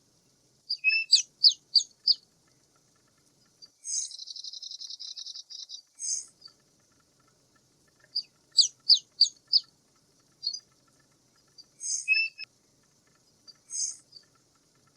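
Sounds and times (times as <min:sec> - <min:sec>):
faint insect buzz: 0:00.0 - 0:14.9
bird chirping and trilling: 0:00.7 - 0:02.2, 0:03.6 - 0:06.6, 0:08.0 - 0:09.7, 0:10.4 - 0:12.5, 0:13.4 - 0:14.4
harsh bird calls: 0:00.7 - 0:02.2, 0:11.4 - 0:12.5.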